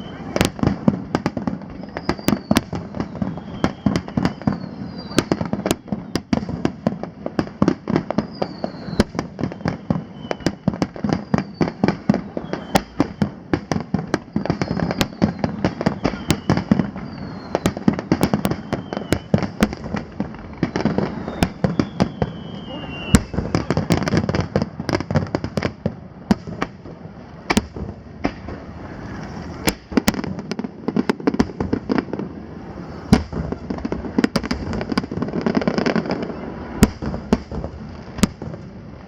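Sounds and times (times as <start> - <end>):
falling firework whistles: 0.0 - 38.8
fireworks bursts and bangs: 0.0 - 39.0.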